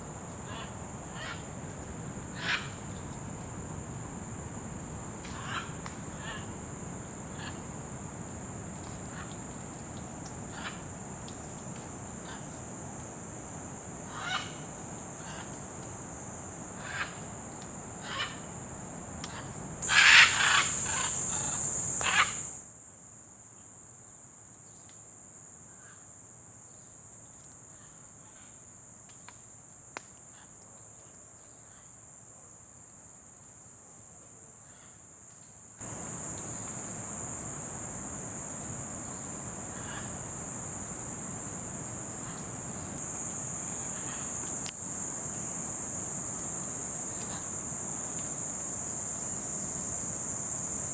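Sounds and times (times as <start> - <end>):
faint bird calls: 19.3 - 22.6
harsh bird squawks: 19.8 - 22.5
high-pitched insect drone: 19.8 - 22.6, 35.8 - 50.9.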